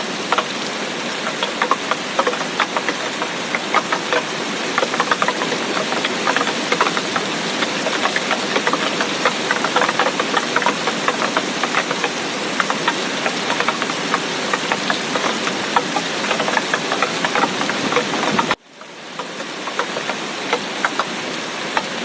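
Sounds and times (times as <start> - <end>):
heavy rain: 0.0 - 22.0
raindrops ticking: 0.0 - 22.0.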